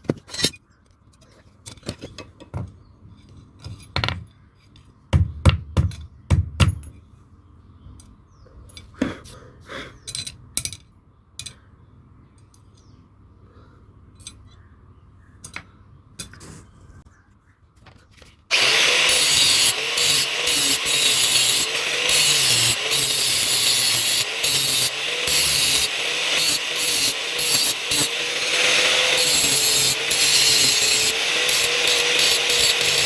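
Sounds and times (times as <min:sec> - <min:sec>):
metal tools knocking and clinking: 0:01.7 - 0:04.4, 0:10.1 - 0:11.6
metal rasping: 0:18.5 - 0:33.0.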